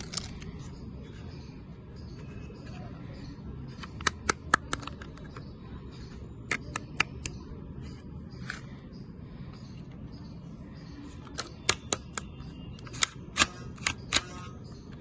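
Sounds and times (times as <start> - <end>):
plastic toy clicking: 3.8 - 5.4, 11.2 - 14.6.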